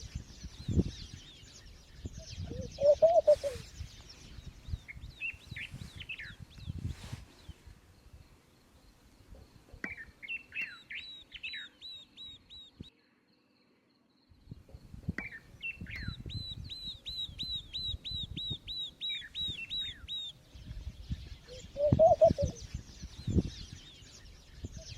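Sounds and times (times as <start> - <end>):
small birds chirping: 0.0 - 24.9
lower-pitched bird call: 2.4 - 3.8.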